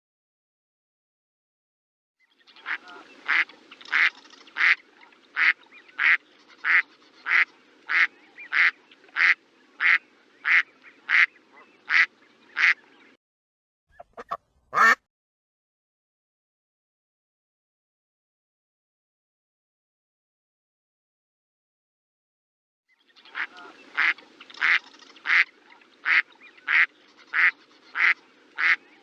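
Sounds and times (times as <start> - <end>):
faint background noise: 2.3 - 13.2, 23.0 - 29.0
duck quacking: 2.6 - 4.8, 5.4 - 11.3, 11.9 - 12.8, 14.0 - 15.0, 23.3 - 28.8.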